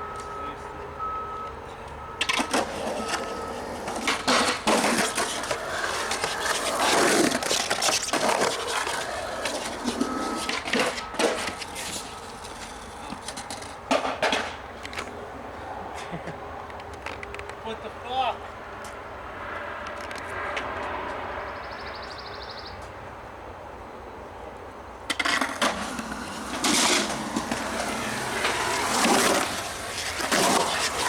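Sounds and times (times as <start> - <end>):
skateboard clacking on ground: 2.2 - 15.2, 25.0 - 31.0
skateboard rolling and scraping: 2.2 - 15.2, 25.0 - 31.0.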